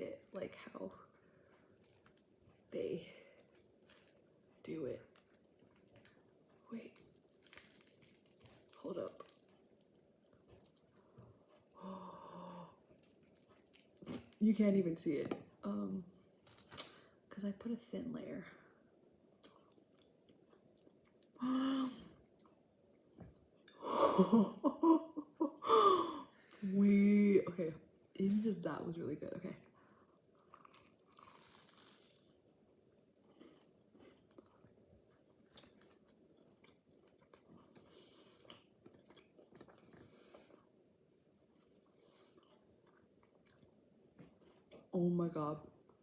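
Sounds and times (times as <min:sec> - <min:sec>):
person chewing pastry: 0:00.1 - 0:11.8, 0:12.6 - 0:14.4, 0:19.4 - 0:21.4, 0:29.7 - 0:44.9.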